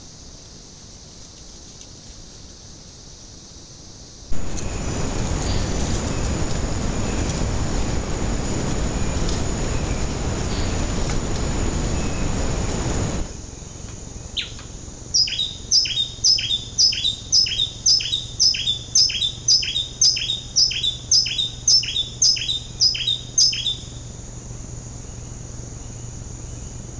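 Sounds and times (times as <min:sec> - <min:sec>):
rush of noise: 0:04.3 - 0:13.5
bird calling sharp notes: 0:14.4 - 0:24.1.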